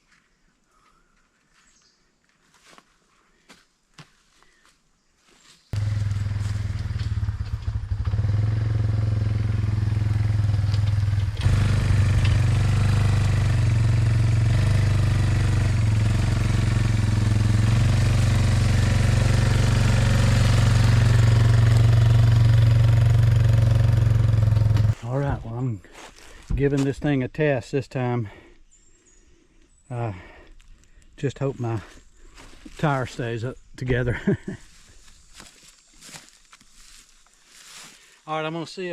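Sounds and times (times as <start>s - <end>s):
small gasoline engine running: 5.8s - 25.0s.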